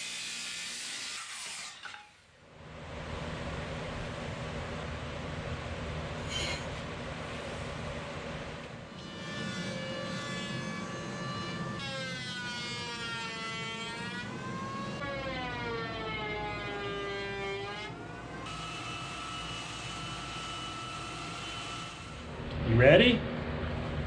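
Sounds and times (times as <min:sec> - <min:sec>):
power tool motor whining: 0:09.6 - 0:22.3.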